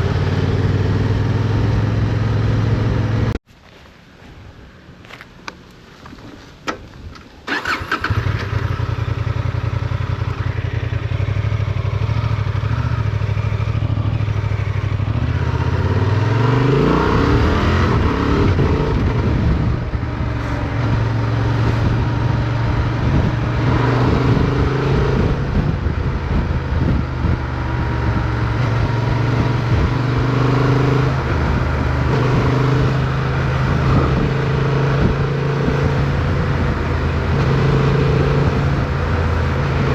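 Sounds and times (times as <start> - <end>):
motorcycle engine: 0.0 - 3.4, 7.5 - 39.9.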